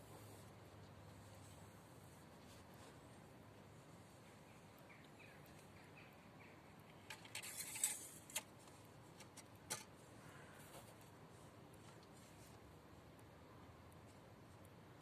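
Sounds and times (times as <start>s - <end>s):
faint clicks: 4.2s - 15.0s
rustling scrape: 7.1s - 11.2s.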